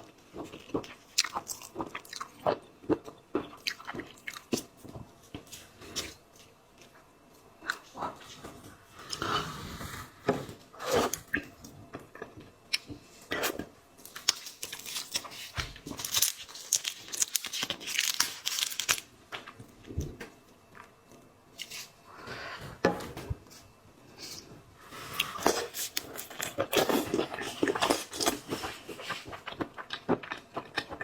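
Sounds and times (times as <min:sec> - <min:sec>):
crunching and chewing: 0:00.0 - 0:07.0, 0:10.9 - 0:19.6, 0:25.1 - 0:31.0.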